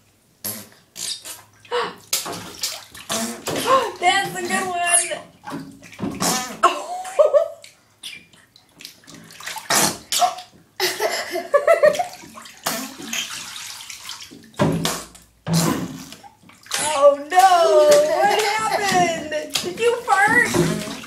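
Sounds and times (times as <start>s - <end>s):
water splashing in bathtub: 0.5s - 21.0s
wavering squeaky sounds: 4.5s - 5.2s.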